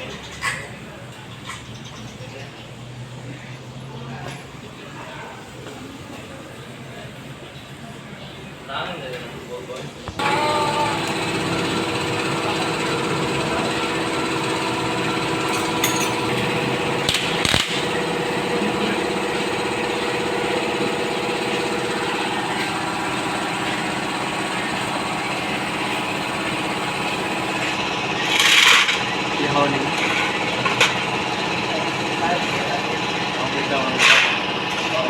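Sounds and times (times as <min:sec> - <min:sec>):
motorcycle engine running: 0:10.1 - 0:33.8.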